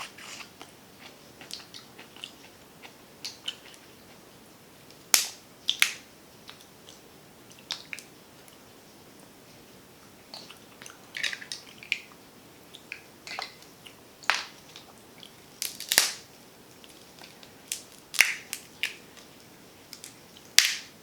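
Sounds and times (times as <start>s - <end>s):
crab shell cracking: 15.6s - 16.2s, 16.8s - 19.0s, 19.9s - 20.9s.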